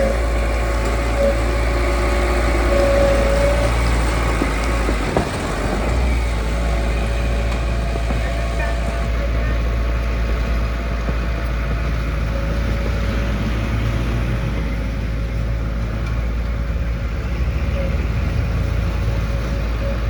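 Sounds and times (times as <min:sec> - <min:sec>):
thin steady whine: 0:00.0 - 0:11.4
diesel engine deep rumble: 0:00.0 - 0:20.0.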